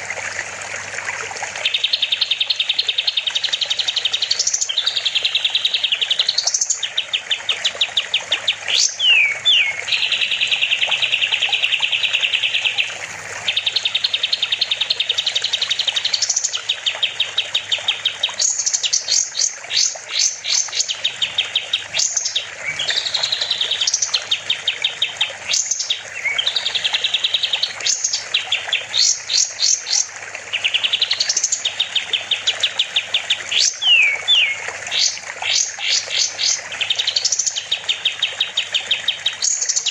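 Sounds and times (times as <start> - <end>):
songbird singing trills: 1.6 - 39.9
upward-sweeping bird whistles: 8.7 - 10.8, 33.5 - 37.6.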